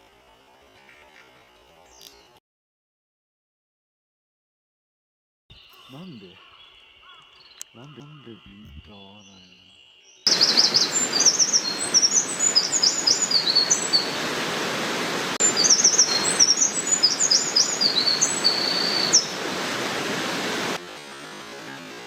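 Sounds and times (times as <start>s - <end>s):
wren singing trills: 5.5s - 14.2s, 15.4s - 19.5s
steady rushing noise: 10.3s - 22.0s.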